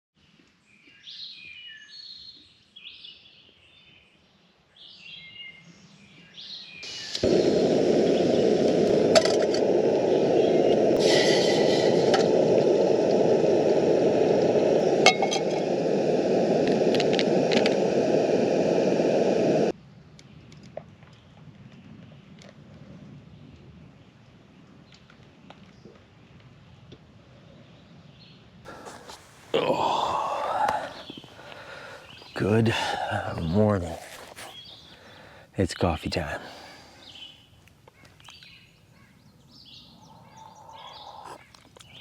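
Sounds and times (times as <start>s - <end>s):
birds chirping: 28.7s - 42.0s.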